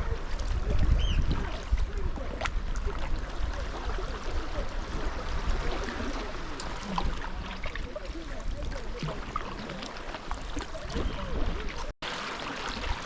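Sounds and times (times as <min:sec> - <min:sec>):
water lapping around kayak hull: 0:00.0 - 0:13.0.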